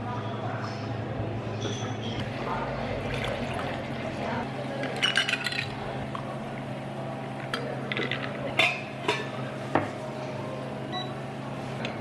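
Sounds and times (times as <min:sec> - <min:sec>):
utensils and dishes clinking: 0:01.6 - 0:02.2, 0:04.7 - 0:05.8, 0:07.4 - 0:10.0.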